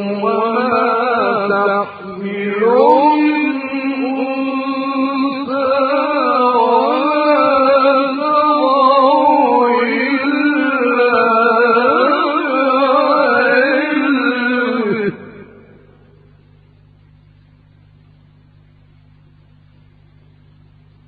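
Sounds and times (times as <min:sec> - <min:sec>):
man chanting melodically: 0:00.0 - 0:16.0.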